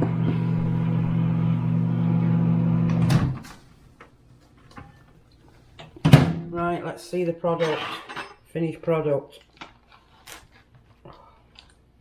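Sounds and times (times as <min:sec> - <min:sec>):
microwave oven humming: 0:00.0 - 0:03.4.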